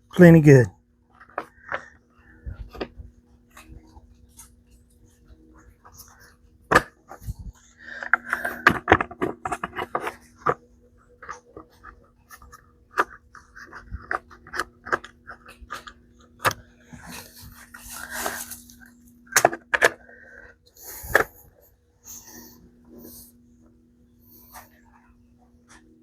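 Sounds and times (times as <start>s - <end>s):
steady low hum: 0.0s - 26.0s
small parts clicking and scraping: 7.1s - 20.1s.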